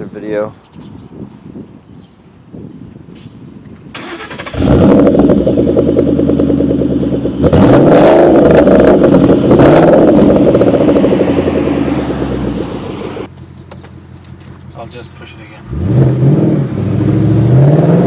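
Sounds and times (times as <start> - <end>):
car engine revving and idling: 4.0 - 18.0.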